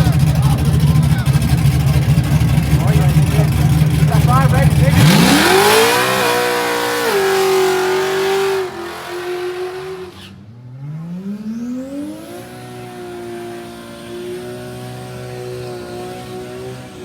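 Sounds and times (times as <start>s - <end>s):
racing engine accelerating: 0.0s - 17.0s
racing engine at high revs: 0.0s - 17.0s.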